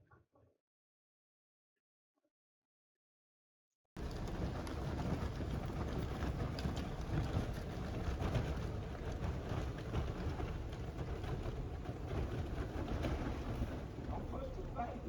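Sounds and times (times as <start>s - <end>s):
wind buffeting microphone: 4.0s - 15.0s.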